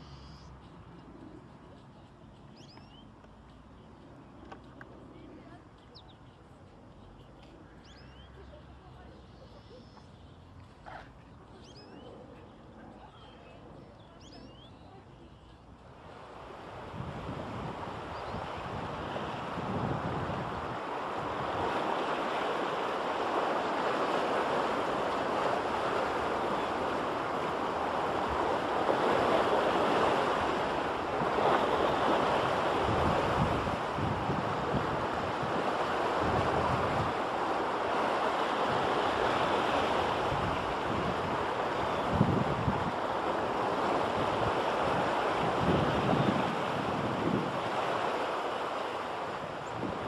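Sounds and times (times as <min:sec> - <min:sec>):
rushing water: 0:15.8 - 0:50.0
wind buffeting microphone: 0:16.2 - 0:50.0.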